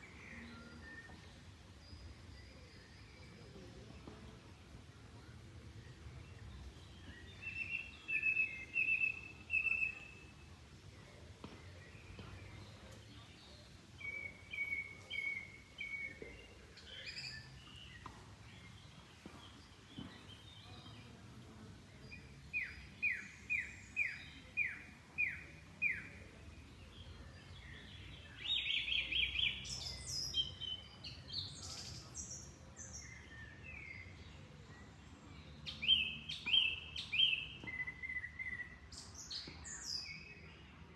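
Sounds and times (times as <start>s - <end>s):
faint steady background noise: 0.0s - 40.9s
songbirds singing: 0.0s - 40.9s.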